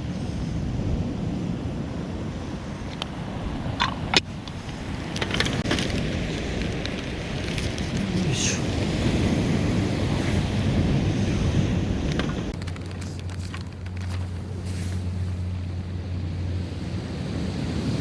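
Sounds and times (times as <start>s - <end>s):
surf on a beach: 0.0s - 18.0s
wind buffeting microphone: 0.0s - 18.0s
rustling: 12.6s - 18.0s.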